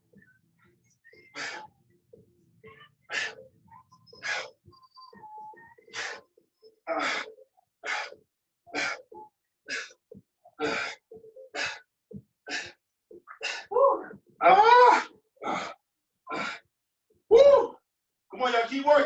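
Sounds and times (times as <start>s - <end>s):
sharp exertion breaths: 1.2s - 1.7s, 3.1s - 3.5s, 4.2s - 4.6s, 5.9s - 6.3s, 6.9s - 10.0s, 10.6s - 13.8s, 14.7s - 16.7s.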